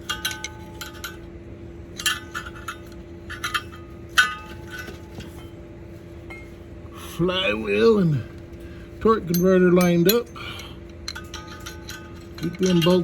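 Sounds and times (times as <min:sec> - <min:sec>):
metal tools clinking: 0:00.0 - 0:01.3, 0:02.0 - 0:05.5, 0:09.1 - 0:13.0
steady low hum: 0:00.0 - 0:13.0.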